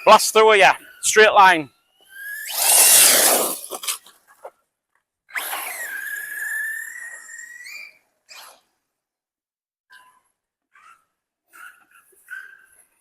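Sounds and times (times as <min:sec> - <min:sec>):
rc car rush of noise: 0:01.8 - 0:04.2, 0:05.3 - 0:08.6.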